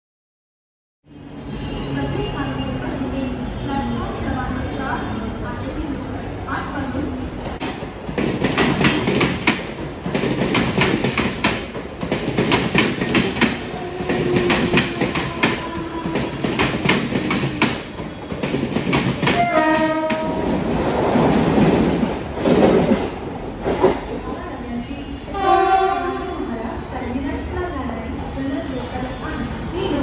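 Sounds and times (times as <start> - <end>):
rushing noise of passing train: 1.0 - 30.0
train wheels clattering over rail joints: 7.6 - 24.1
train horn: 19.3 - 20.6, 25.3 - 26.4.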